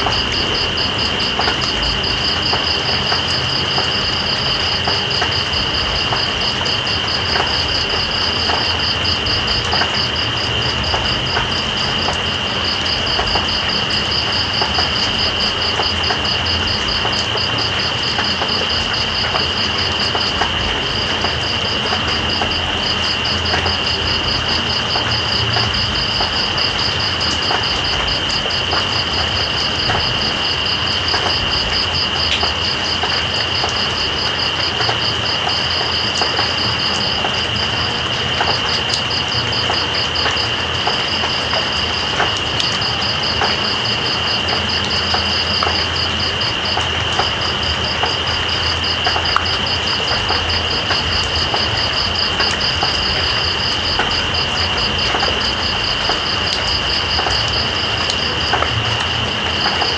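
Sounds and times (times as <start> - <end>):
insect high drone: 0.0 - 59.9
rain hissing and pattering: 0.0 - 59.9.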